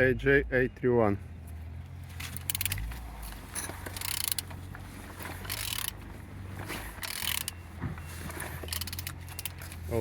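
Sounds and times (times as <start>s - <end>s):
ratchet clicking: 2.3s - 2.8s, 3.6s - 4.6s, 5.4s - 6.0s, 7.0s - 7.6s, 8.7s - 9.6s.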